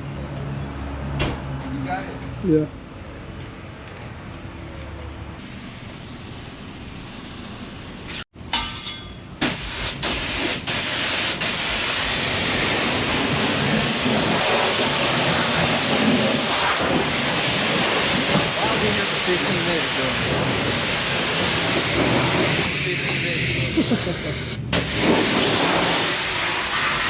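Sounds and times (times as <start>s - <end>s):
water spraying over a car: 9.7s - 23.0s, 24.8s - 27.0s.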